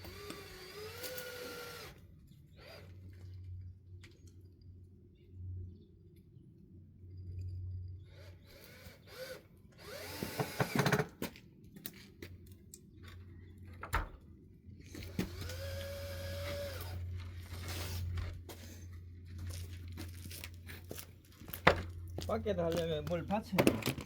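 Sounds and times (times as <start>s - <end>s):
power drill running: 0.0s - 2.0s, 2.6s - 3.0s, 8.1s - 11.1s, 15.0s - 18.0s.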